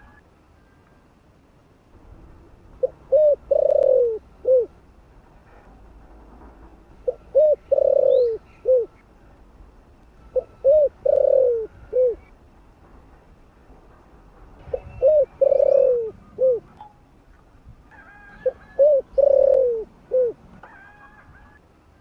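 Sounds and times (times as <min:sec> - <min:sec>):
dove cooing: 0:02.8 - 0:04.7, 0:07.0 - 0:09.0, 0:10.3 - 0:12.3, 0:14.7 - 0:16.8, 0:17.9 - 0:21.6
small birds chirping: 0:07.2 - 0:09.1.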